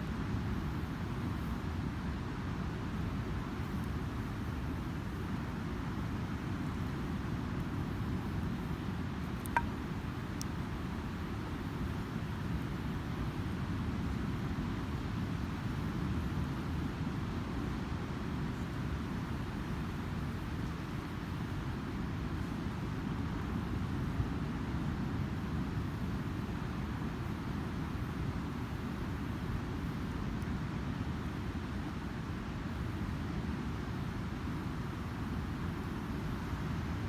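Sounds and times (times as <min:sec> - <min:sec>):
campfire crackle: 0:03.0 - 0:15.6.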